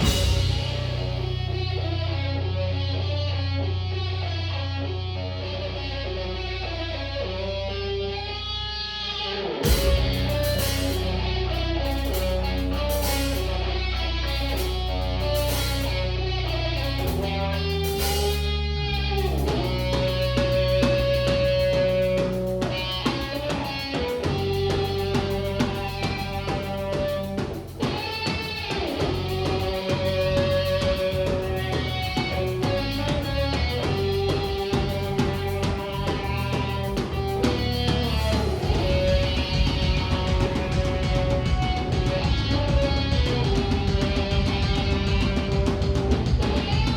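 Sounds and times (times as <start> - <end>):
metal band playing: 0.0 - 2.6, 8.1 - 46.9
electric guitars: 0.0 - 46.9.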